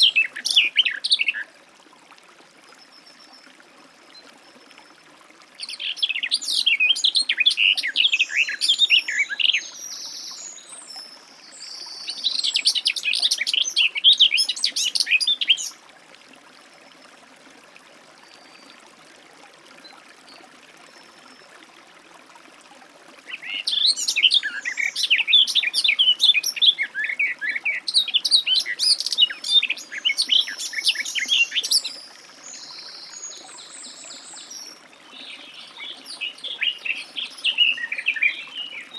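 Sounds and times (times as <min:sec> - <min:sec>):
bird warbling song: 0:00.0 - 0:01.5, 0:05.6 - 0:15.8, 0:23.3 - 0:38.9.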